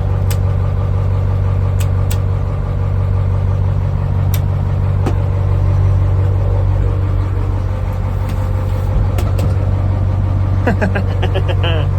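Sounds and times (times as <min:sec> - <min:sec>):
truck engine idling: 0:00.0 - 0:11.9.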